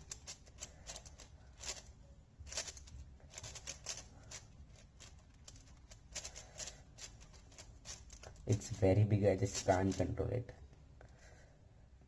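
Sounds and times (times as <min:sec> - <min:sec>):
plastic puzzle cube clicking: 0:00.0 - 0:01.9, 0:02.5 - 0:08.4.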